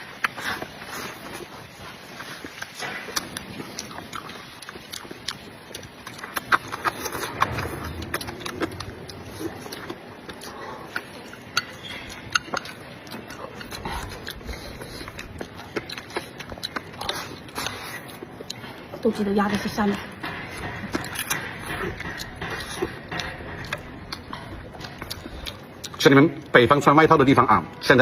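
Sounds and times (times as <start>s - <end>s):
person chewing and slurping: 0.0s - 26.5s.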